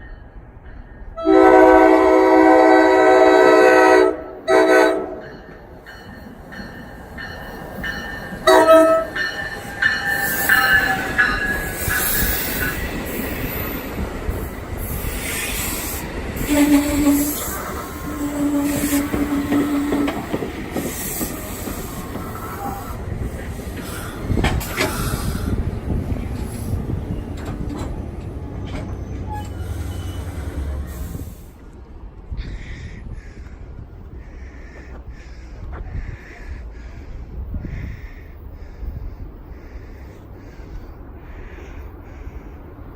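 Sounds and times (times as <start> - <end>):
train rumbling: 0.0 - 42.9
train horn blast: 1.2 - 5.4, 8.4 - 9.3, 16.4 - 20.4, 29.0 - 31.3.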